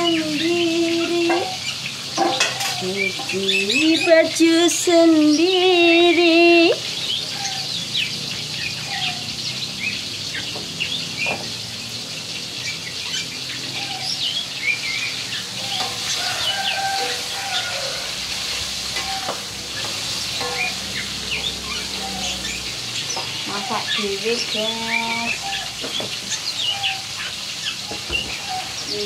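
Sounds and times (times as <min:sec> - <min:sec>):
birds chirping: 0:00.0 - 0:29.0
food sizzling in a wok: 0:00.0 - 0:29.0
metal spatula scraping wok: 0:01.3 - 0:03.5, 0:15.2 - 0:23.8.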